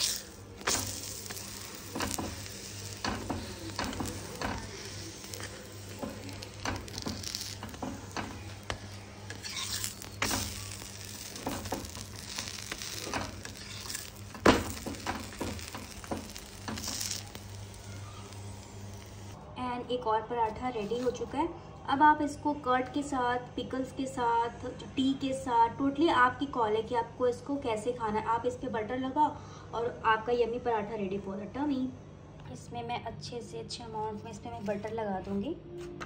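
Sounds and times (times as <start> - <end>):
flatbread sizzling on griddle: 0.0 - 19.4
spatula scraping griddle: 0.0 - 19.4.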